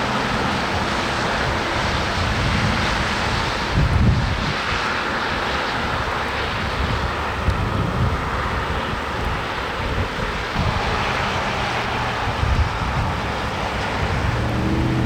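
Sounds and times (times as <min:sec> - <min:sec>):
road traffic hiss: 0:00.0 - 0:15.0
wind buffeting microphone: 0:00.0 - 0:15.0.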